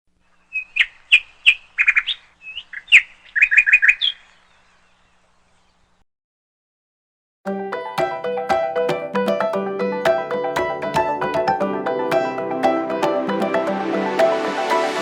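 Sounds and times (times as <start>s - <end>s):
songbird chirping and trilling: 0.3s - 6.0s.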